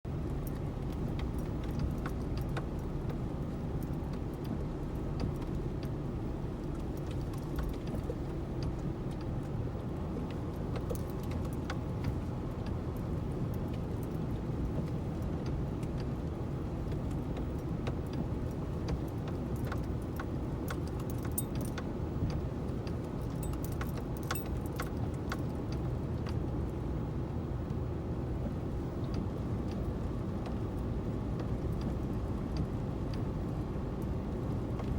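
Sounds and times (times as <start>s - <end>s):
car engine and road rumble: 0.0s - 34.9s
small clicks and jingles: 10.2s - 15.3s, 16.9s - 26.5s.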